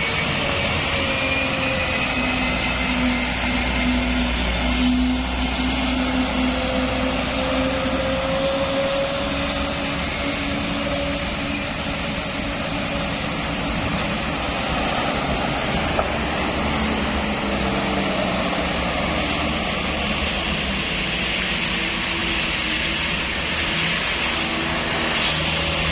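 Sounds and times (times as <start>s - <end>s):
vehicle engines running: 0.0s - 25.9s.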